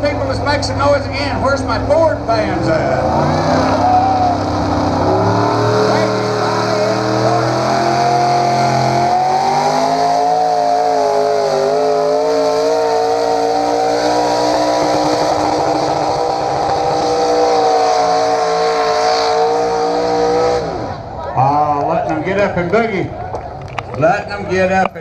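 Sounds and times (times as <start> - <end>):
engine at high revs under load: 2.4 - 21.0.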